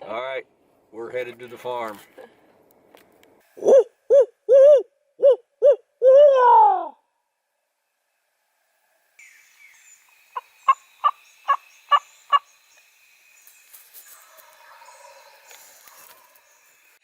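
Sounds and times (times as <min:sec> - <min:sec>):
wild turkey yelping: 0:03.6 - 0:06.4, 0:10.4 - 0:12.5.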